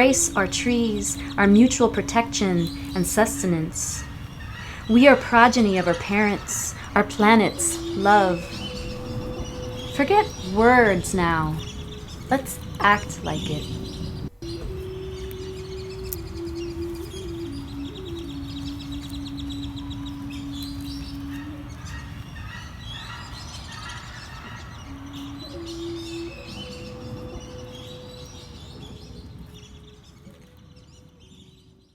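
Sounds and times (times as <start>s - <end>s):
held low notes: 0.0s - 21.8s
birds chirping and trilling: 0.0s - 31.9s.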